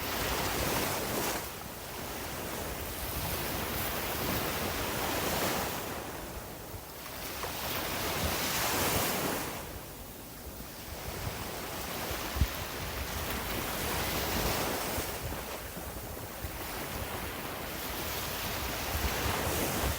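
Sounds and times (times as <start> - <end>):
sea waves breaking on beach: 10.8 - 19.9.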